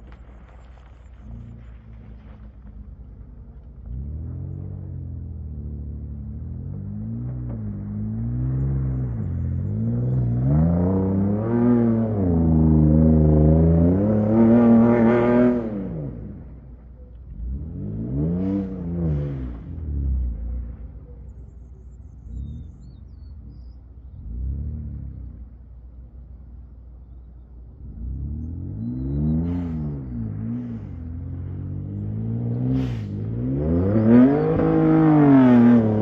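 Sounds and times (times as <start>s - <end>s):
vehicle engine revving hard: 6.9s - 16.4s, 17.3s - 20.4s, 27.8s - 36.0s.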